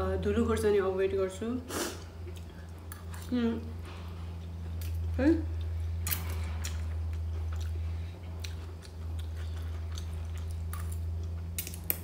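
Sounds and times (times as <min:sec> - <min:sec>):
steady low hum: 0:00.0 - 0:12.0
person chewing noodles: 0:01.9 - 0:03.4, 0:04.0 - 0:12.0.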